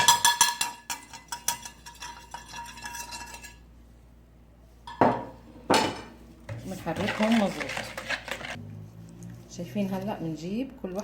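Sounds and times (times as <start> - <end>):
metal spoon clinking in a bowl: 0.0 - 3.7.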